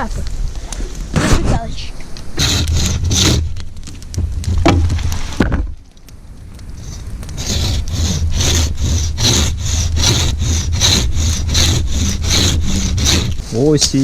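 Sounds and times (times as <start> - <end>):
hand saw cutting wood: 1.2 - 1.6, 2.4 - 3.4, 6.8 - 13.7.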